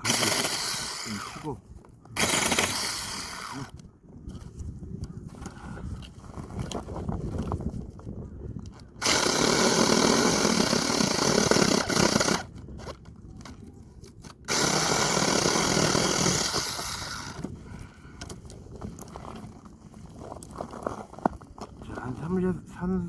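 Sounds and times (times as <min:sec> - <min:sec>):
electric chainsaw cutting branches: 0:00.0 - 0:01.5, 0:02.2 - 0:03.8, 0:09.0 - 0:12.6, 0:14.5 - 0:17.5.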